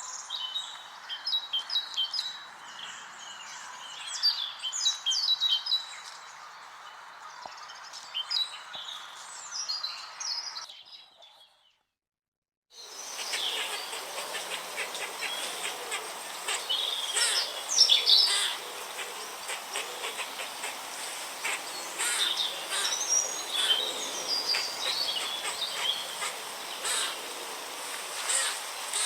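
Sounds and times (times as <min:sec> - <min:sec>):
birds chirping and calling: 0:12.8 - 0:29.0
steady background hiss: 0:12.8 - 0:29.0.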